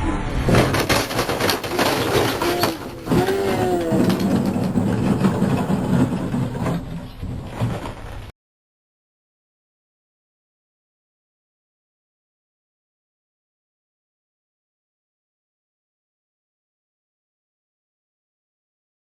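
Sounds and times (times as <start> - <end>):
crunching and rattling clatter: 0.4 - 8.3.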